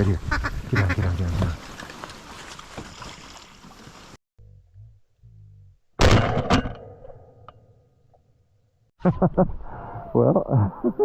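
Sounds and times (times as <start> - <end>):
shotgun shots: 6.0 - 6.7.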